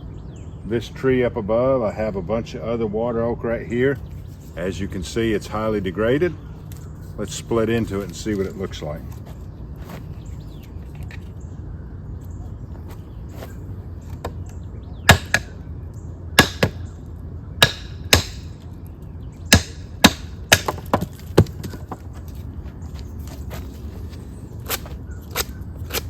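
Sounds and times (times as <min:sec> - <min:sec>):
sharp wooden strikes of chopping: 0:15.1 - 0:15.6, 0:16.4 - 0:16.8, 0:17.6 - 0:18.6, 0:19.5 - 0:22.0, 0:24.6 - 0:26.0.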